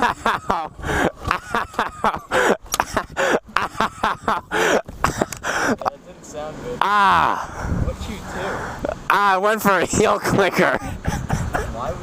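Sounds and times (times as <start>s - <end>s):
person making wordless sounds: 6.8s - 9.3s.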